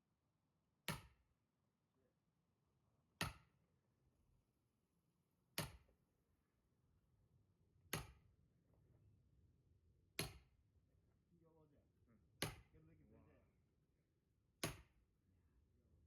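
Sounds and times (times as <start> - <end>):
axe splitting firewood: 5.6 - 5.9, 7.9 - 8.2, 10.2 - 10.5, 12.4 - 12.7, 14.6 - 15.0.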